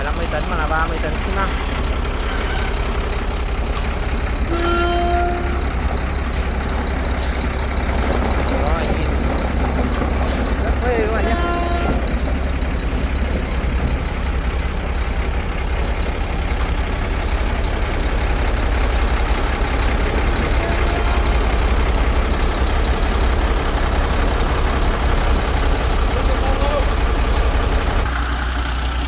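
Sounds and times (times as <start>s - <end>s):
heavy vehicle engine rumbling: 0.0s - 29.0s.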